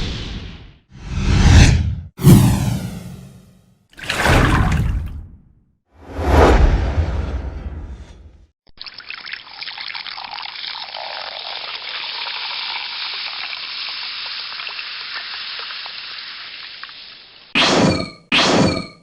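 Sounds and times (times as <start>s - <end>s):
watery hiss with crackles: 12.7s - 17.5s.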